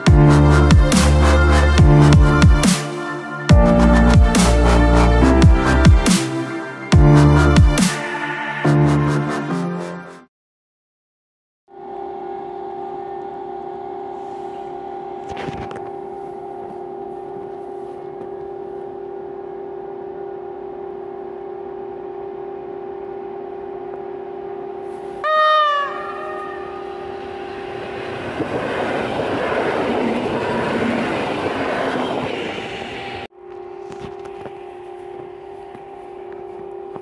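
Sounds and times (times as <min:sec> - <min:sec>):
steady hum: 0:11.8 - 0:37.0
train horn blast: 0:24.8 - 0:28.8
train wheels rumbling: 0:25.8 - 0:33.3.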